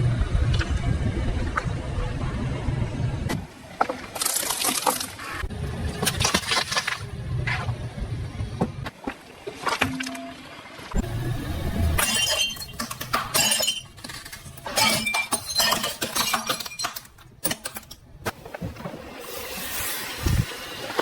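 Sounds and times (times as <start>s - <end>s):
glassy clinks of scattering pieces: 12.0s - 18.0s.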